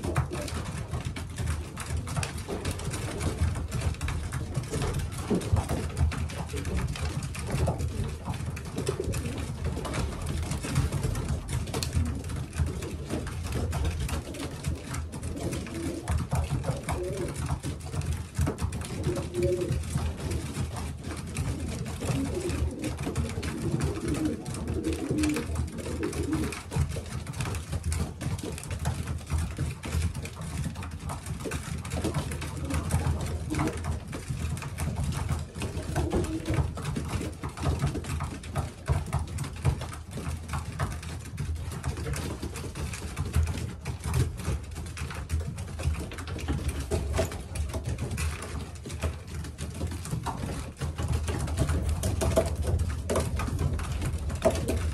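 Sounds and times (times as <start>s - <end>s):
pigeons cooing: 0.0s - 0.9s, 7.5s - 10.6s, 13.8s - 17.9s, 18.8s - 26.8s, 32.0s - 34.0s, 35.6s - 37.7s.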